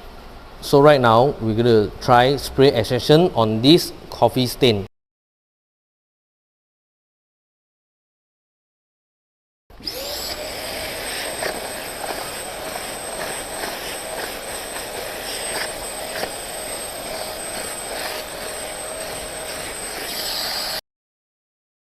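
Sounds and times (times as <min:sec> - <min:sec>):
vacuum suction motor whining: 0:09.7 - 0:20.8.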